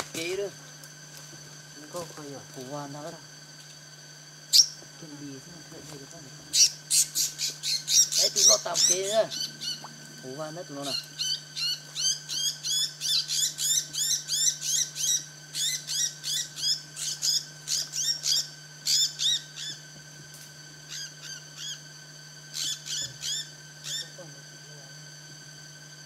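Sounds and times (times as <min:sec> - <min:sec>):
small bird chirping: 0:04.5 - 0:04.9, 0:06.5 - 0:10.2, 0:10.8 - 0:19.8, 0:20.9 - 0:21.8, 0:22.5 - 0:24.2.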